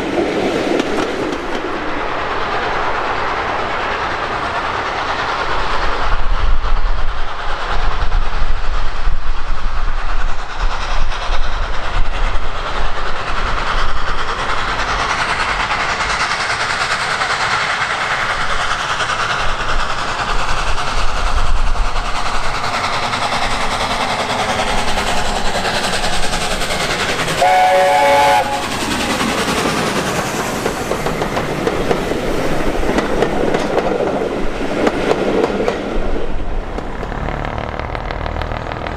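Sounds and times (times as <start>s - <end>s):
train wheels clattering over rails: 0.0s - 38.9s
locomotive horn blast: 27.4s - 28.6s.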